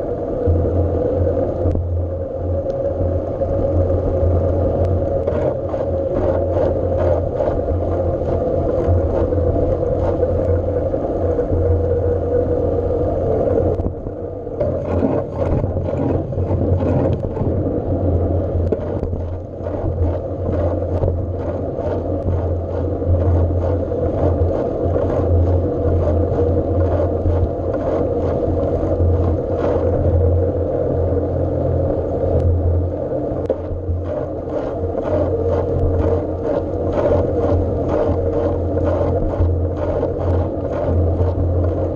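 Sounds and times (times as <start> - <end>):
light clicks and scrapes: 4.8 - 10.6, 14.6 - 17.6.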